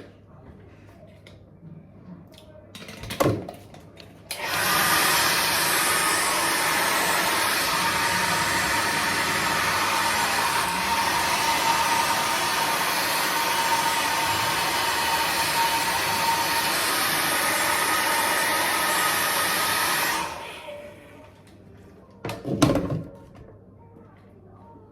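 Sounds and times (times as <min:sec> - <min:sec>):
hair dryer blowing: 0:04.3 - 0:21.2.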